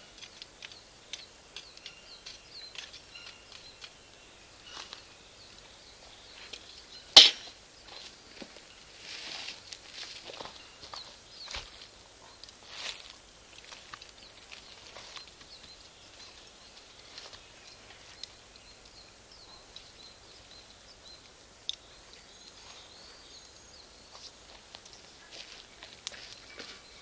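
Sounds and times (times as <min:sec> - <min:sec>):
charcoal popping: 0:07.1 - 0:07.5.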